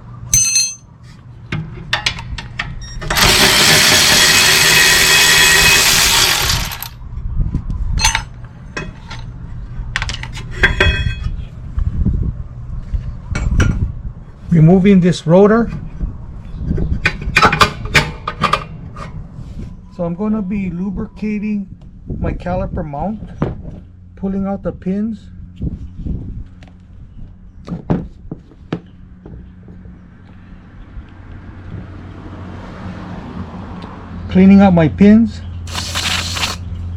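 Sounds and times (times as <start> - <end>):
metal tools clinking: 0.3 - 0.9, 3.1 - 6.9
power tool whirring: 3.0 - 7.0, 35.7 - 36.7.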